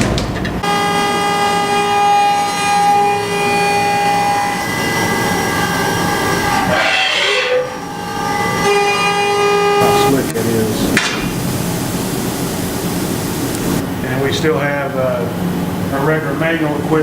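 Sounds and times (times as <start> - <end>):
milling machine whine: 0.5 - 16.0
noisy cutting rush: 0.6 - 13.8.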